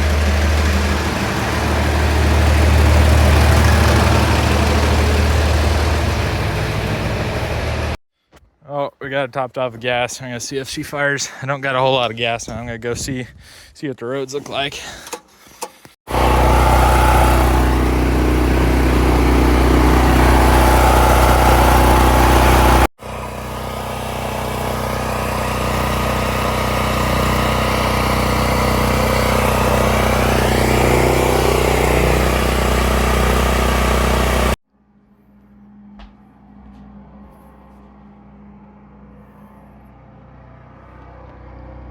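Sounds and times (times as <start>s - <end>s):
vehicle engine running: 0.0s - 8.0s, 16.1s - 34.6s.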